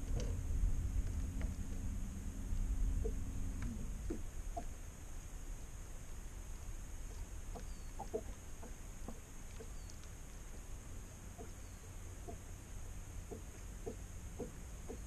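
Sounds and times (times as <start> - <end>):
low steady rumble: 0.0 - 15.0
clucking bird calls: 7.5 - 10.0, 11.3 - 12.4, 13.3 - 15.0.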